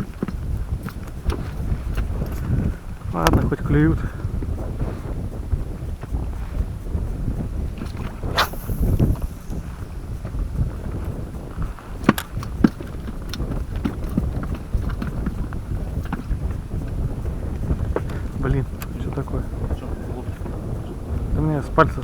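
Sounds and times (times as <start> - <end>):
wind buffeting microphone: 0.0 - 22.0
sharp clicks: 7.8 - 16.4.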